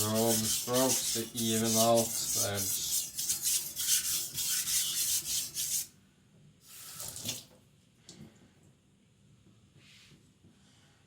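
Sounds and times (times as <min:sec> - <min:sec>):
blade scraping on whetstone: 0:00.0 - 0:05.9.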